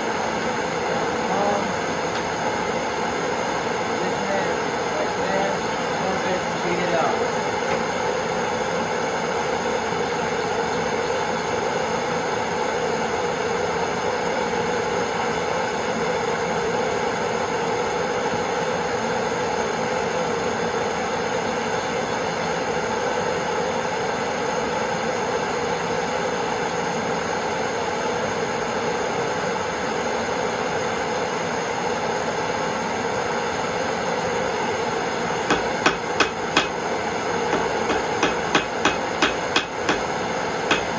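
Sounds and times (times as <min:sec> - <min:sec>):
gas torch flame hissing: 0:35.5 - 0:40.9.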